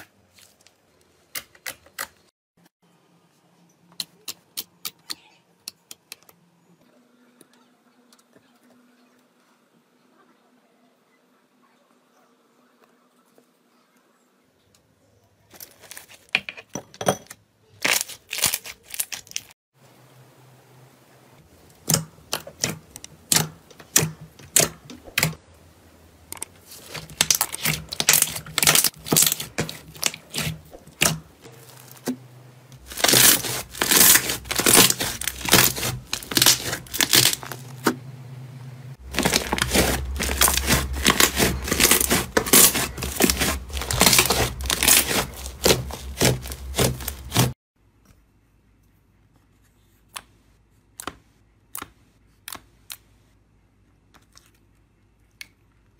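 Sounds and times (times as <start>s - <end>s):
slime crackling and popping: 26.7s - 32.1s, 32.8s - 37.9s, 39.0s - 47.5s.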